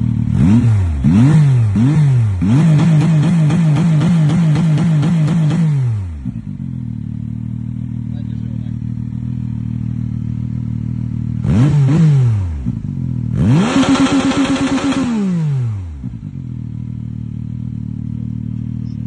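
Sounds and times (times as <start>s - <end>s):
motorcycle engine idling and revving: 0.0s - 19.0s
rev limiter stutter: 0.3s - 6.0s, 13.3s - 16.2s.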